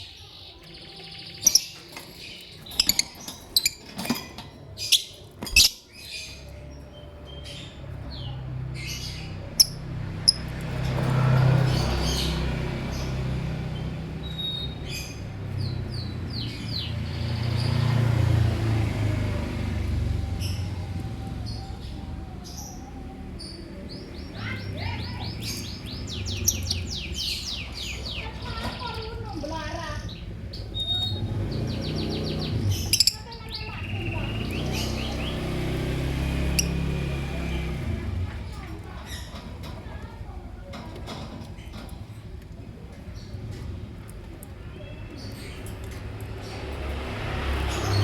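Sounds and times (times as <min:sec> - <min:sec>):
lovebird chirping: 0:00.0 - 0:04.1, 0:04.8 - 0:10.4, 0:29.9 - 0:37.2
lovebirds chirping: 0:00.0 - 0:40.2.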